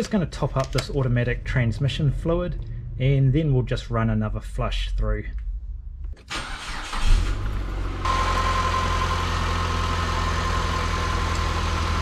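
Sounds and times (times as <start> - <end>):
car engine starting and idling: 6.0 - 12.0.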